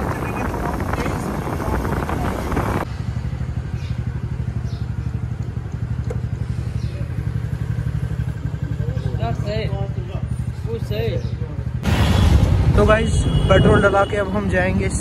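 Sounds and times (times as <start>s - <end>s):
wind on microphone: 0.0s - 2.9s
motorcycle riding by: 0.8s - 10.6s
motorcycle engine idling: 2.8s - 11.8s.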